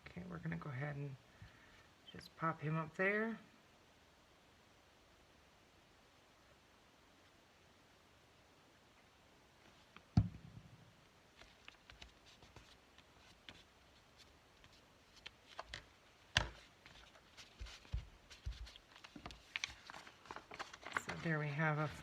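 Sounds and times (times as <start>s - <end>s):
paper rustling: 11.4s - 22.0s.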